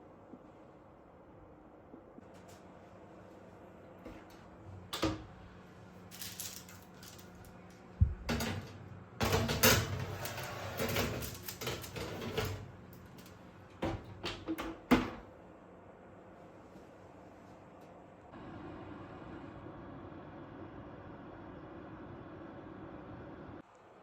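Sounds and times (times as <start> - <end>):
objects clattering when handled: 6.1 - 14.8.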